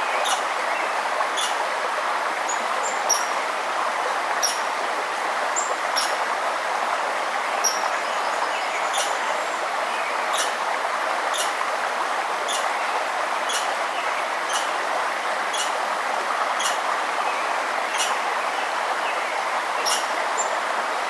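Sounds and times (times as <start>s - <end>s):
river running: 0.0s - 21.0s
bird chipping: 1.4s - 1.6s, 4.4s - 4.6s, 8.9s - 9.2s, 10.3s - 10.6s, 11.3s - 11.6s, 12.5s - 12.7s, 13.5s - 13.8s, 14.5s - 14.7s, 15.5s - 15.8s, 16.6s - 16.8s, 17.9s - 18.2s, 19.8s - 20.1s.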